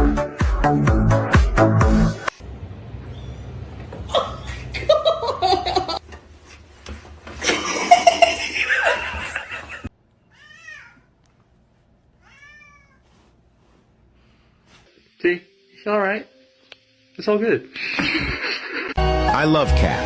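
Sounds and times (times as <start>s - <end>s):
people laughing: 7.4s - 9.9s, 17.8s - 19.5s
cat meowing softly: 10.3s - 11.1s, 12.2s - 13.3s.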